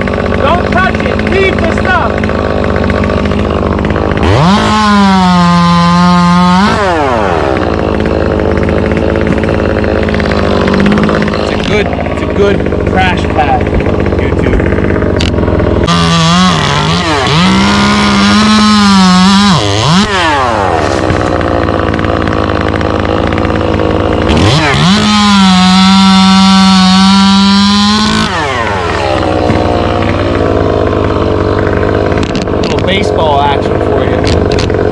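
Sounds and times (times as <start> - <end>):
chainsaw revving: 0.0 - 34.9.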